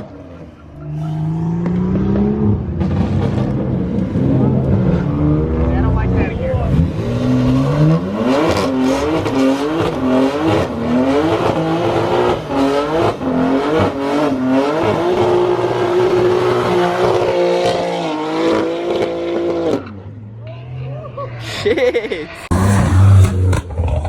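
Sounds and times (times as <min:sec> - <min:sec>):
car engine revving hard: 0:00.8 - 0:20.0, 0:22.5 - 0:24.0.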